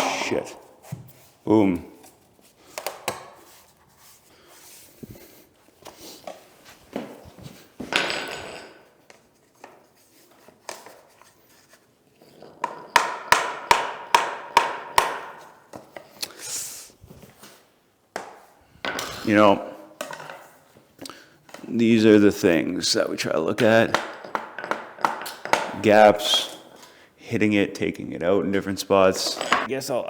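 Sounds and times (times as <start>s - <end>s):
hammer strikes on tapping block: 13.0s - 15.4s
planks knocking: 23.6s - 25.9s.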